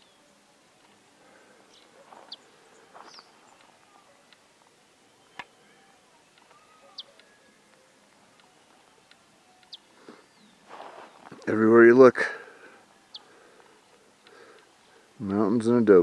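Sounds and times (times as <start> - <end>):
high bird chirps: 6.5 - 7.6.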